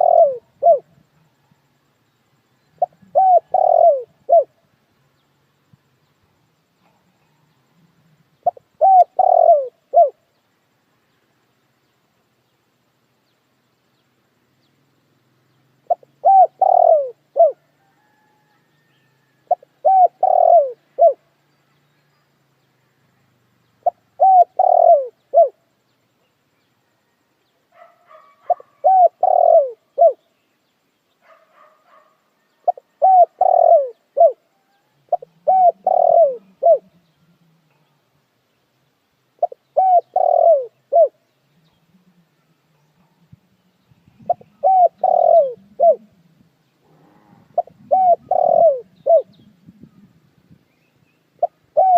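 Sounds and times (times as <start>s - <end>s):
dove cooing: 0.0s - 1.3s, 2.7s - 4.6s, 6.8s - 10.2s, 15.8s - 21.2s, 23.8s - 25.6s, 27.7s - 30.2s, 31.3s - 38.0s, 39.4s - 43.4s, 44.1s - 50.3s, 51.4s - 51.9s
faint high bird chirps: 0.0s - 51.9s.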